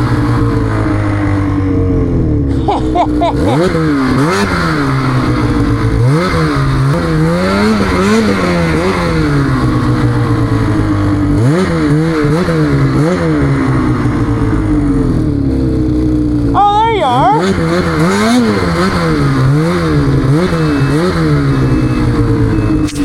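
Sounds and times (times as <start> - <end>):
snowmobile engine revving: 0.0 - 23.0.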